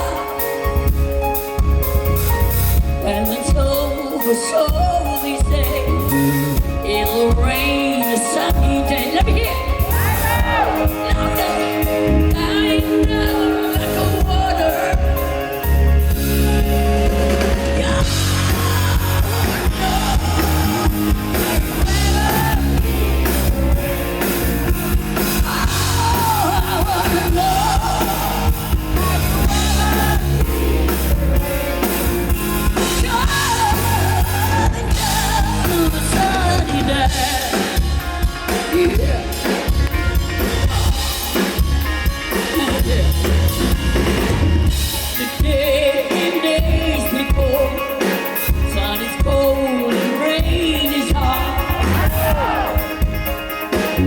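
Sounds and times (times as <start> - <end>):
drum kit beat: 0.0 - 54.0
live rock band playing: 0.0 - 54.0
person singing: 3.0 - 16.0, 17.1 - 32.0, 32.8 - 39.7, 45.1 - 53.1.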